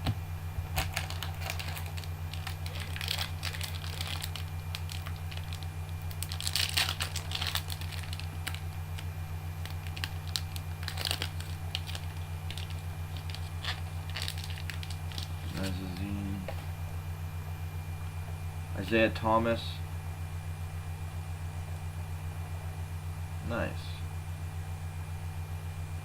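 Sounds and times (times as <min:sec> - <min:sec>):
low electrical hum: 0:00.0 - 0:26.0
cards and wrappers rustling: 0:00.6 - 0:16.7.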